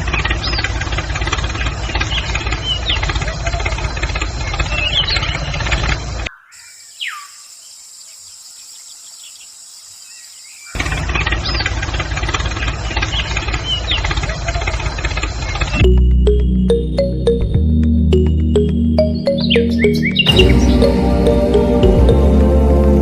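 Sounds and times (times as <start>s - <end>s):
motor with fast rhythmic chatter: 0.0s - 6.3s, 10.8s - 15.8s
bird chirps: 1.8s - 5.6s, 6.2s - 11.7s, 18.2s - 21.0s.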